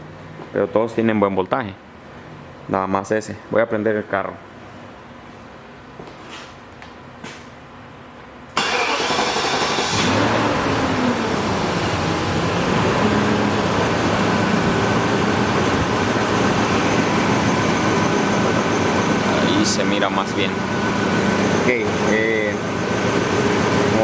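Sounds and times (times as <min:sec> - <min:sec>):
starter motor cranking: 0:08.6 - 0:10.5
car engine starting and idling: 0:08.6 - 0:24.0.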